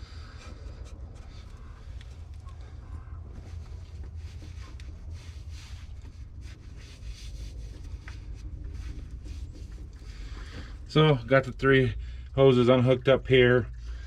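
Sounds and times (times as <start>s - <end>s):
rubbing and scraping noises: 0.0s - 10.9s
steady low rumble: 0.0s - 14.0s.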